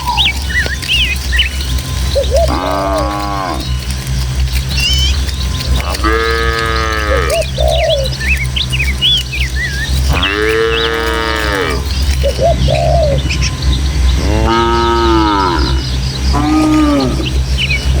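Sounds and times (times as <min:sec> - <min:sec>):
cows mooing: 0:00.0 - 0:18.0
small birds chirping: 0:00.0 - 0:18.0
steady low rumble: 0:00.0 - 0:18.0.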